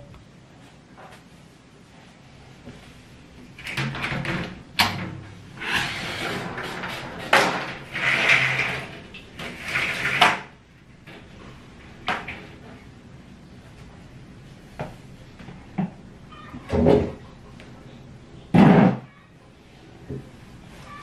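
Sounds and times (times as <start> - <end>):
rustling and scraping: 0.6 - 13.0, 18.6 - 21.0.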